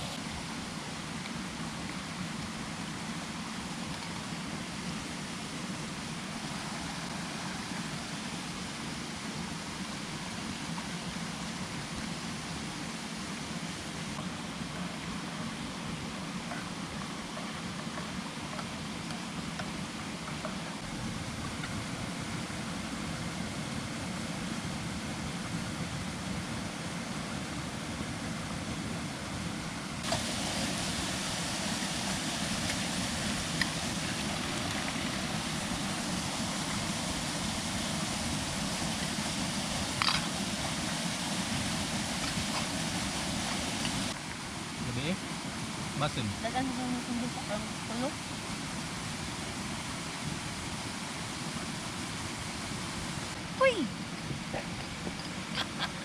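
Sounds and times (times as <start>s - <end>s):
waterfall rushing: 30.0s - 49.0s.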